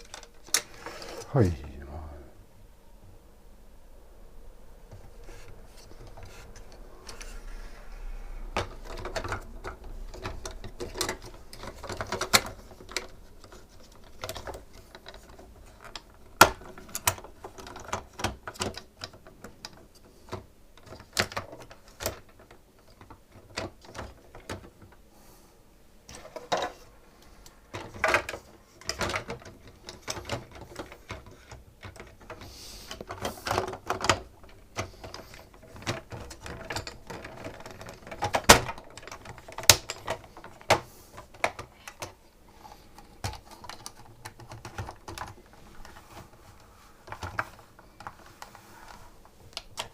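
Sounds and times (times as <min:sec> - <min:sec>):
plastic parts clicking and rattling: 0:00.0 - 0:01.3, 0:08.4 - 0:25.0, 0:26.1 - 0:49.9
parts scraping: 0:00.0 - 0:02.0.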